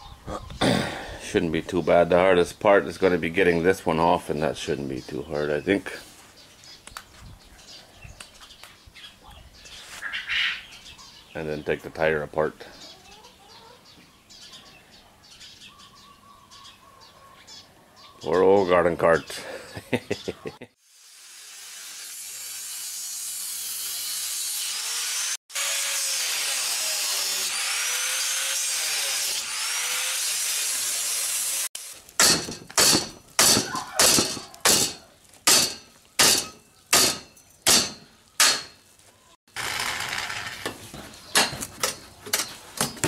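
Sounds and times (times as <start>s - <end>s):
power tool cutting steel: 20.8s - 38.7s, 39.5s - 40.8s
metal clattering: 32.2s - 38.8s.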